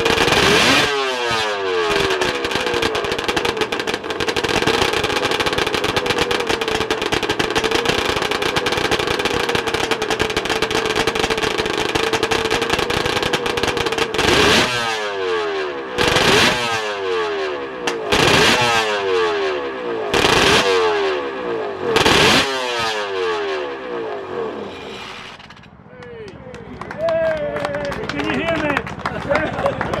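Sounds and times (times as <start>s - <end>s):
two-stroke race engine revving: 0.0s - 25.7s.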